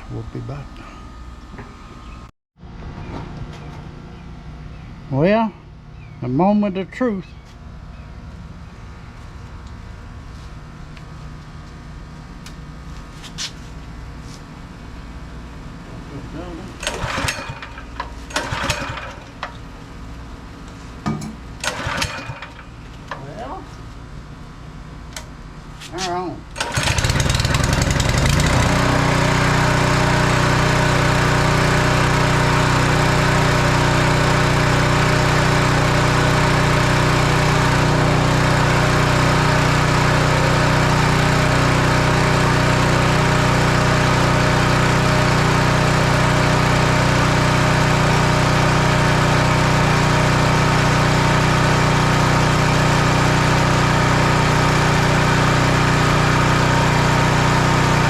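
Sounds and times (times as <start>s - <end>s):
small gasoline engine running: 16.4s - 19.6s, 21.6s - 22.8s, 26.5s - 58.0s.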